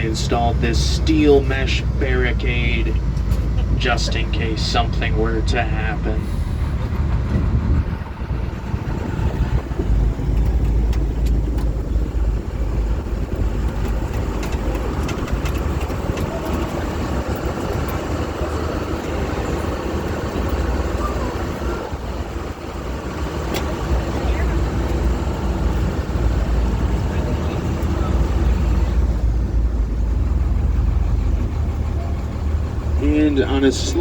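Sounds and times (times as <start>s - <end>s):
heavy engine rumble: 0.0s - 34.0s
rattles and knocks: 6.8s - 19.0s.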